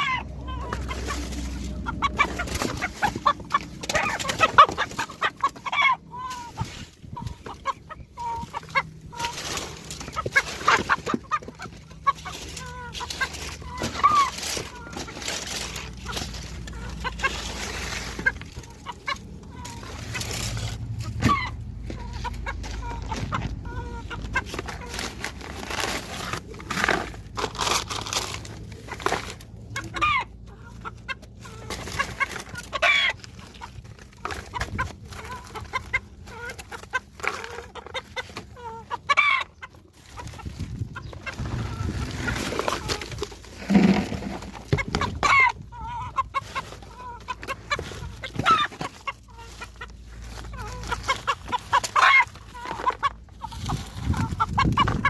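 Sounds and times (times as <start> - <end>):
chickens clucking: 0.0 - 55.0
knocks and scratches: 0.0 - 55.0.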